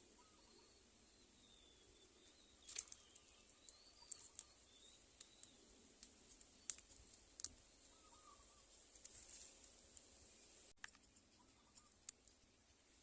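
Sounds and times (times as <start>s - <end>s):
faint high chirps: 0.0s - 5.8s
faint sharp clicks: 5.2s - 7.6s.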